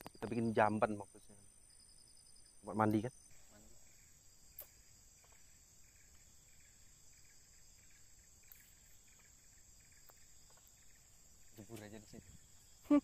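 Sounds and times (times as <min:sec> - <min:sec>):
high-pitched insect drone: 0:00.0 - 0:13.0
rapid insect chirps: 0:00.0 - 0:13.0
small click: 0:04.6 - 0:04.8.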